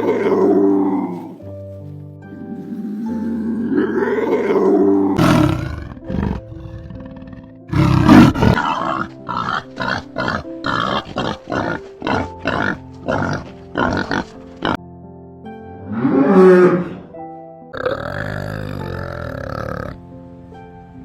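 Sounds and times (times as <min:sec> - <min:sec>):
animal grunting calls: 0:00.0 - 0:01.4, 0:02.3 - 0:14.8, 0:15.9 - 0:20.0
animal roaring: 0:00.0 - 0:01.4, 0:02.4 - 0:14.8, 0:15.8 - 0:17.2
background music: 0:00.0 - 0:21.0.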